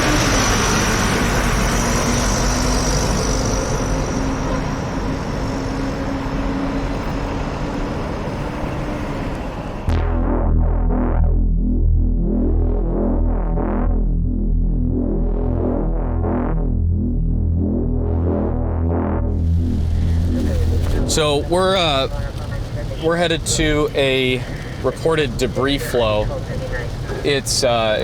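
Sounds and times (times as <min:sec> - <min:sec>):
vehicle traffic: 0:00.0 - 0:10.0, 0:15.4 - 0:28.0
synthesizer music with steady beat: 0:09.9 - 0:22.1
heavy rain: 0:19.4 - 0:28.0.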